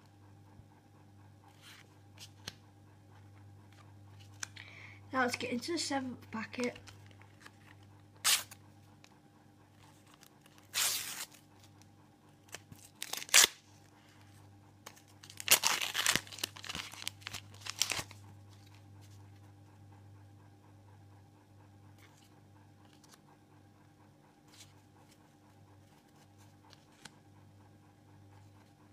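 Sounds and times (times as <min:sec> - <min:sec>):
foil packet tearing and crinkling: 0:06.8 - 0:08.6, 0:10.6 - 0:11.4, 0:12.5 - 0:13.6, 0:14.9 - 0:18.2.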